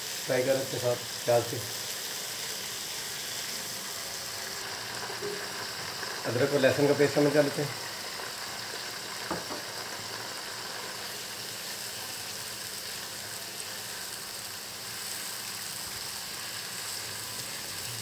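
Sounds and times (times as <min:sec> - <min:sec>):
paste sizzling in hot oil: 0:00.0 - 0:18.0
spatula tap: 0:09.3 - 0:09.7.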